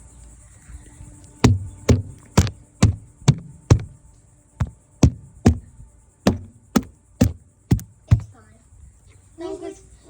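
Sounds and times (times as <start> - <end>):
sharp knocks on hard surface: 1.4 - 4.0, 4.6 - 8.3.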